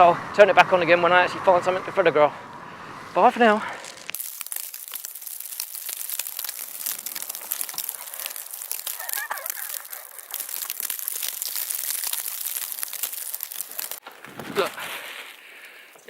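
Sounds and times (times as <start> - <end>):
footsteps crunching in snow: 3.6 - 16.0
clothing rustling: 14.0 - 15.4.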